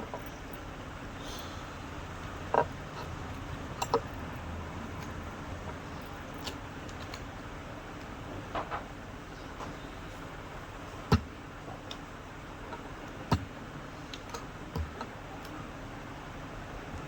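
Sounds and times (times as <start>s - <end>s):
steady low hum: 0.0s - 17.0s
knocks and clicks on fan parts: 2.2s - 4.2s, 8.0s - 9.0s, 10.9s - 15.6s.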